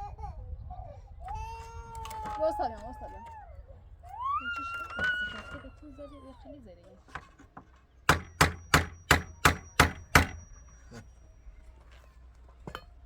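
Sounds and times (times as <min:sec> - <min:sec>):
hammer blows with metallic ring: 0:08.1 - 0:11.4.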